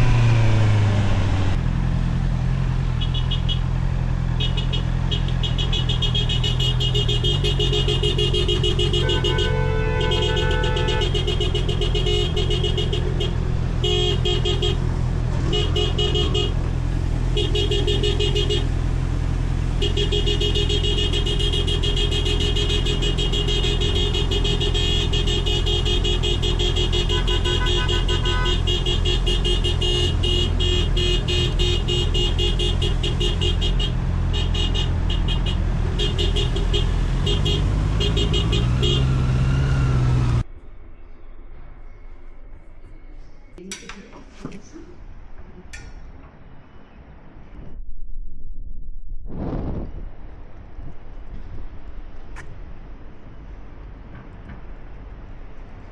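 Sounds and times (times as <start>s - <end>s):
motorcycle engine running: 0.0s - 40.4s.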